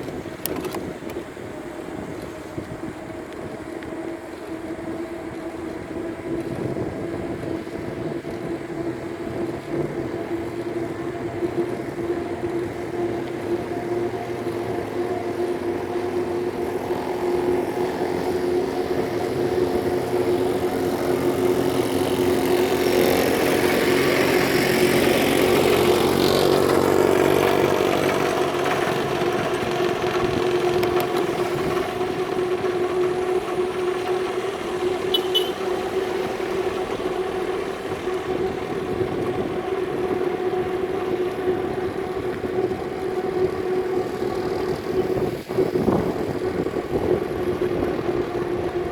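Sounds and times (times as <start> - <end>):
traffic engine hum: 0.0 - 48.9
vehicle passing: 3.0 - 48.9.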